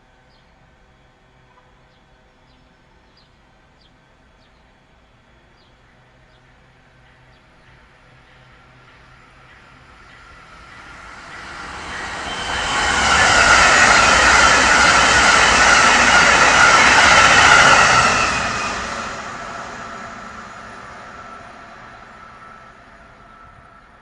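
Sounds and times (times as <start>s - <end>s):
train passing at speed: 0.0s - 24.0s
faint steady whine: 19.1s - 24.0s.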